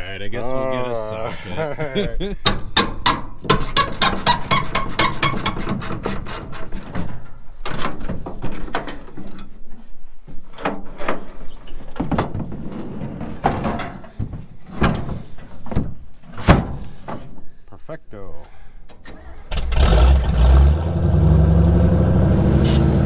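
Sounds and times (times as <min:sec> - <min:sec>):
hand tools clicking and knocking: 0:02.4 - 0:09.5.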